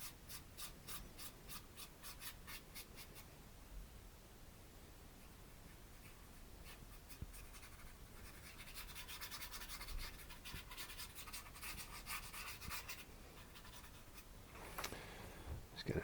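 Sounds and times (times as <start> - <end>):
paintbrush scratching on canvas: 0.0 - 3.3, 5.7 - 14.3.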